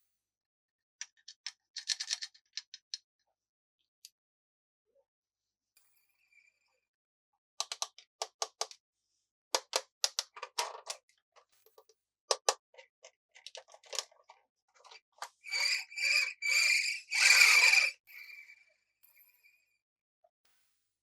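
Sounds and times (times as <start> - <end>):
plastic toy pieces clicking: 1.2 - 2.6.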